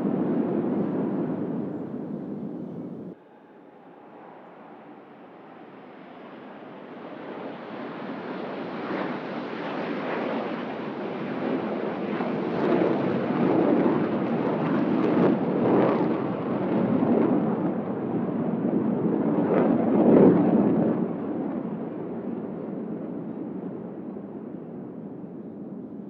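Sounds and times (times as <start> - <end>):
fighter jet roar: 0.0 - 9.5.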